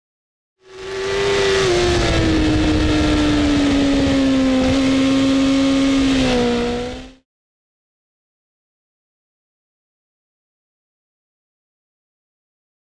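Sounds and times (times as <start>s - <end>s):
motorcycle engine at high revs: 0.6s - 7.2s.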